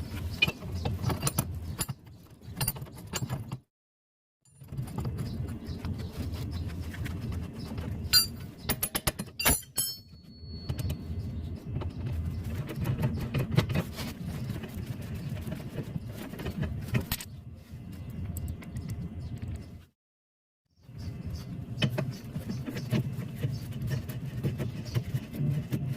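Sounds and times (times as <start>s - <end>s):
metal tools clinking: 8.1s - 11.0s.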